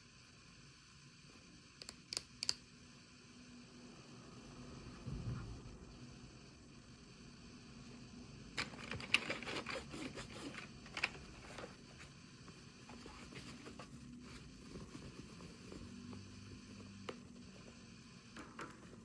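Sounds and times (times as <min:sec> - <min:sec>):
plastic clicks and crinkles: 0:08.6 - 0:11.8.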